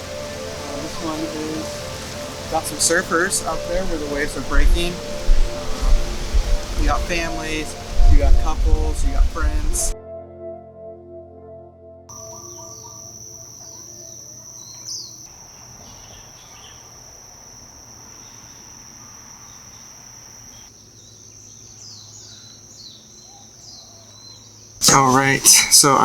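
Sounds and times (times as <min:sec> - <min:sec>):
insects trilling: 0:00.0 - 0:10.0, 0:12.1 - 0:26.0
music: 0:00.0 - 0:14.3
short bird chirps: 0:12.1 - 0:17.3.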